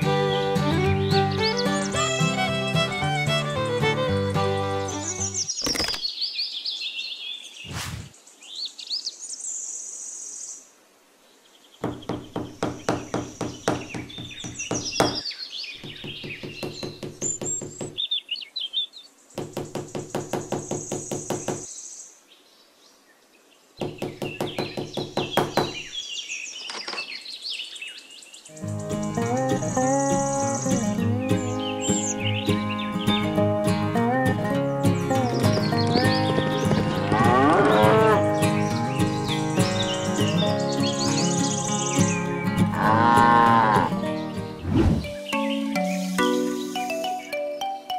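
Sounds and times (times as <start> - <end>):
birds chirping: 0.0 - 10.6, 11.4 - 47.9
hammer tapping wooden post: 11.8 - 15.2, 15.8 - 18.0, 19.4 - 21.7, 23.8 - 25.9.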